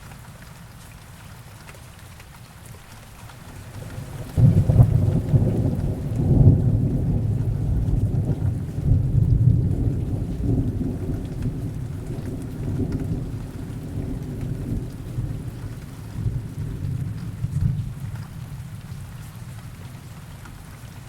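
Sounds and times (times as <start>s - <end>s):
heavy rain falling: 0.0s - 21.0s
deep roll of thunder: 3.8s - 19.0s.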